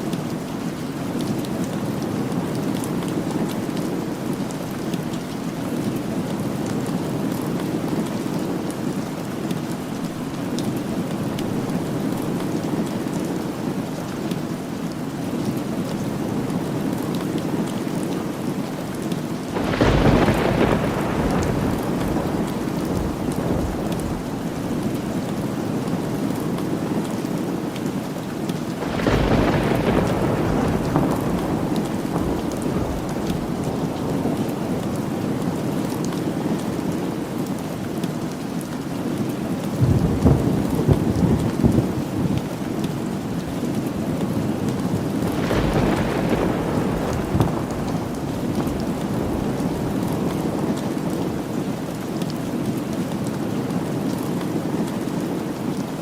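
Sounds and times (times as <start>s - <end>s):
rain falling: 0.0s - 56.0s
thunder rumble: 19.6s - 25.5s, 28.8s - 34.8s, 39.8s - 42.5s, 44.8s - 51.3s.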